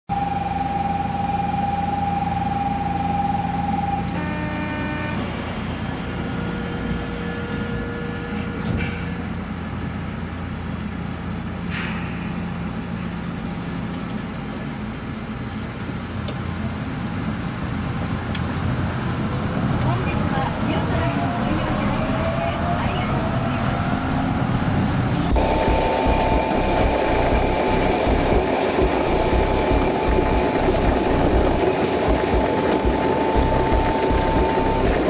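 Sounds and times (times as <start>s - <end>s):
high whine: 0.1s - 8.7s, 21.7s - 35.0s
train rumble: 0.1s - 35.0s
short electronic tone: 25.3s - 35.0s.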